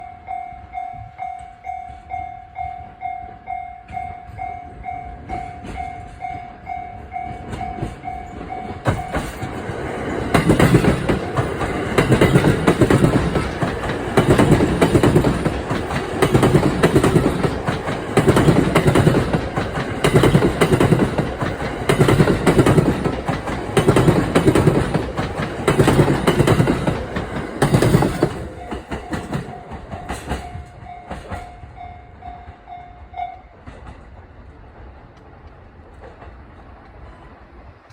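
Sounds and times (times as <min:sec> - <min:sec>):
level crossing warning bell: 0:00.0 - 0:27.0
train wheels clacking over rail joints: 0:05.2 - 0:31.8.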